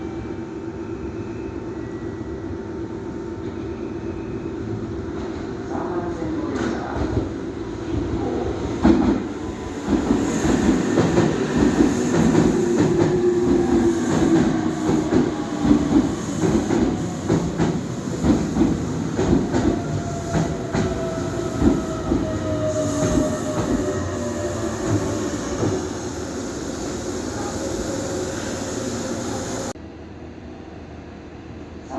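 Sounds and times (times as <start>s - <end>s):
train whine: 8.2s - 29.8s
train wheels clicking over rail joints: 8.8s - 25.8s.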